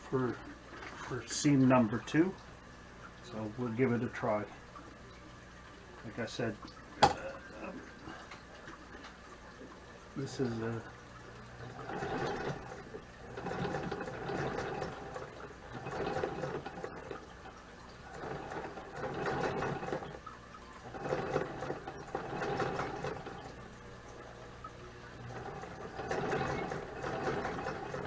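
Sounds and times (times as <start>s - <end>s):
sewing machine stitching: 11.6s - 23.6s, 25.2s - 28.0s.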